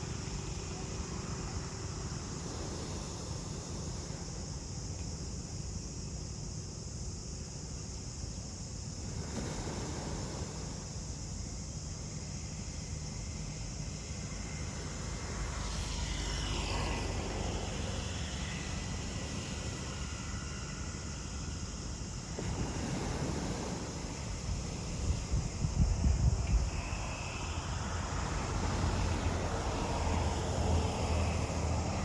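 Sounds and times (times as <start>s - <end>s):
insects droning: 0.0s - 32.0s
ocean surf: 9.0s - 11.2s, 22.1s - 25.6s, 26.4s - 32.0s
wind rumble: 13.9s - 32.0s
distant vehicle passing: 27.4s - 32.0s.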